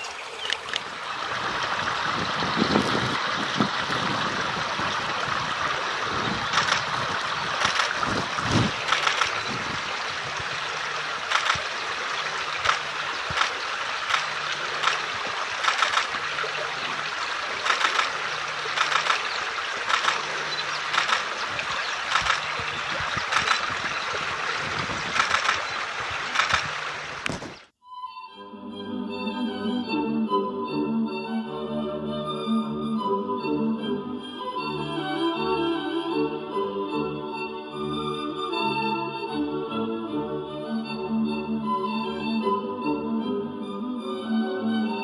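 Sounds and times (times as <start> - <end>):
stream water running: 0.0 - 27.7
short sharp ticks: 11.3 - 11.7, 15.6 - 16.2, 18.8 - 20.3, 20.9 - 21.3, 22.1 - 22.5, 26.4 - 27.5.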